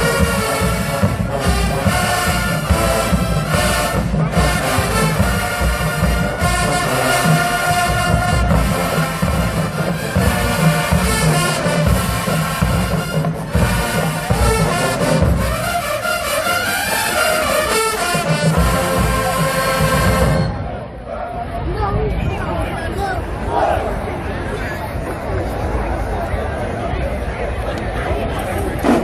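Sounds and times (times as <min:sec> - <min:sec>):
heavy drums: 0:00.0 - 0:20.7
brass horns: 0:00.0 - 0:20.8.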